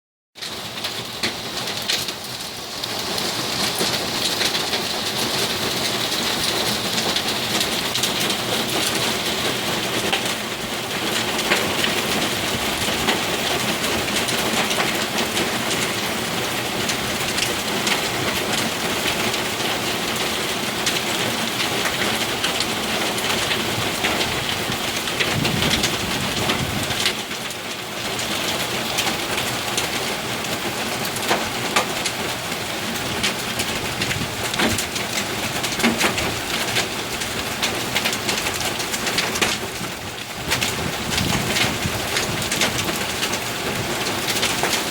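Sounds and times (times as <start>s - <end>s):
heavy rain pouring: 0.4s - 44.9s
low rumble of thunder: 23.8s - 27.1s, 40.4s - 43.1s
hailstones striking hard surfaces: 32.9s - 44.9s.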